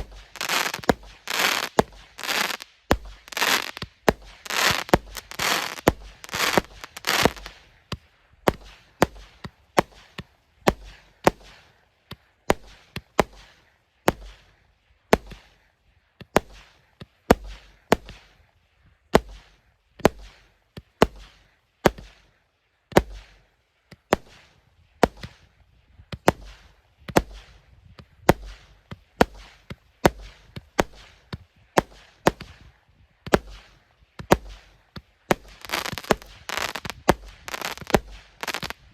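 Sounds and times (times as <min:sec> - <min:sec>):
crackling firework bursts: 0:00.0 - 0:15.7, 0:26.2 - 0:38.9
fireworks bangs with hiss: 0:00.0 - 0:38.9.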